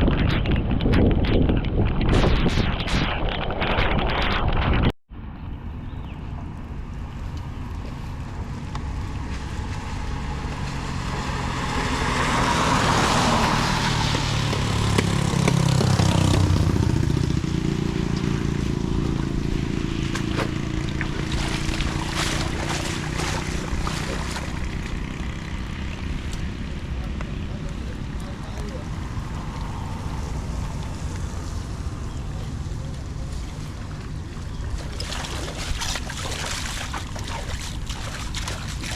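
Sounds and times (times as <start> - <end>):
steady rushing noise: 0.0 - 4.9
motor vehicle passing: 5.8 - 38.9.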